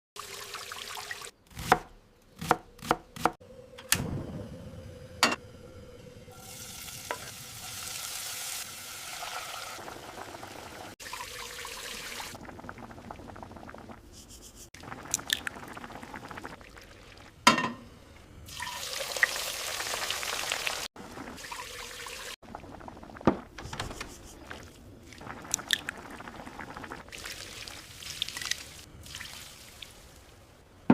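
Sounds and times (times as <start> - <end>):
liquid pouring: 0.2 - 1.3, 6.3 - 14.0
frying sizzle: 6.3 - 12.4, 18.5 - 22.4.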